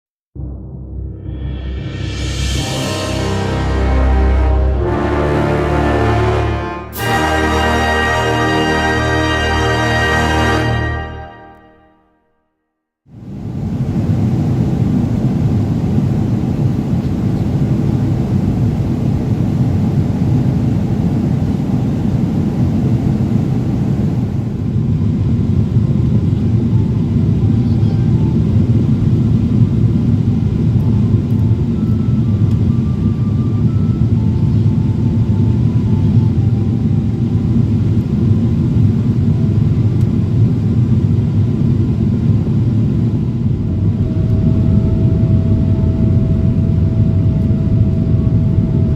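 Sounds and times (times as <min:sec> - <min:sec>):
airplane cabin engine drone: 0:13.2 - 0:48.9.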